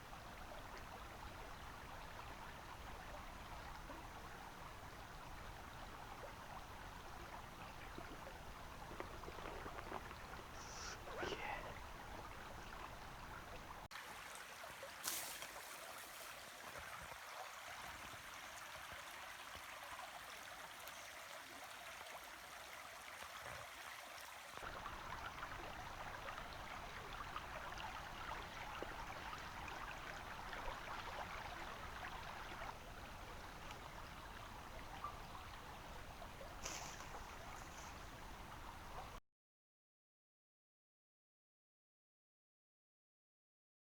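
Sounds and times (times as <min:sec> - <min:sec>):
stream water rushing: 0:04.2 - 0:39.2.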